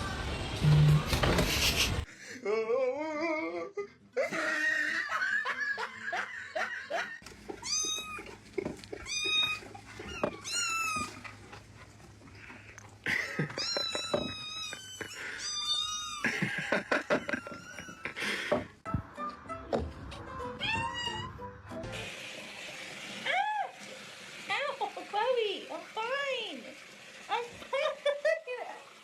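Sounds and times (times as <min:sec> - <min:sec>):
cat meowing: 0:07.6 - 0:08.3, 0:09.0 - 0:11.2, 0:13.5 - 0:16.2, 0:20.6 - 0:21.3.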